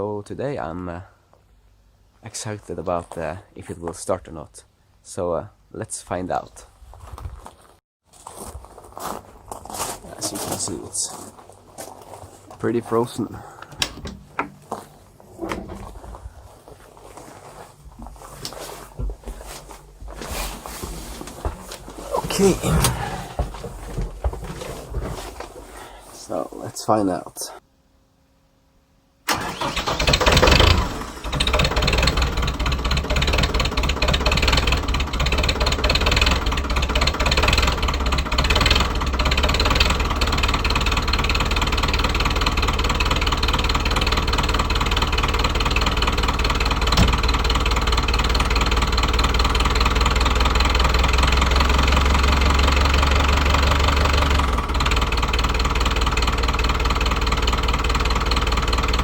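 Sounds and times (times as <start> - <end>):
tractor diesel engine starting: 13.2 - 16.2, 17.1 - 26.4, 29.3 - 59.0.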